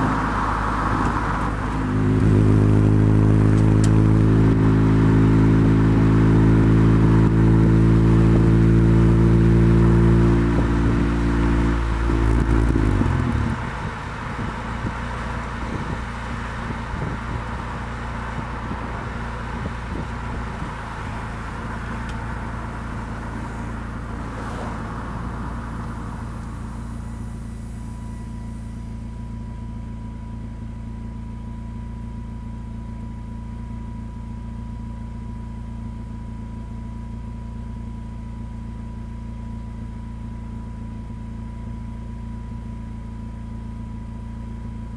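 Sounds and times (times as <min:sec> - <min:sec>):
car engine revving: 0:00.0 - 0:30.4.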